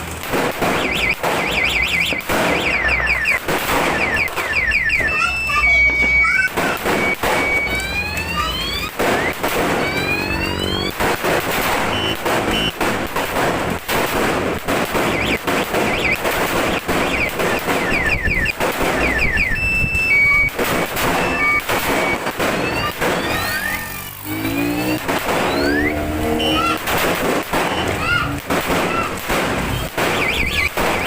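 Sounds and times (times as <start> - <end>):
firecracker string cracking: 0.0 - 31.0
rising electronic whooping tones: 0.8 - 12.8, 15.0 - 28.5.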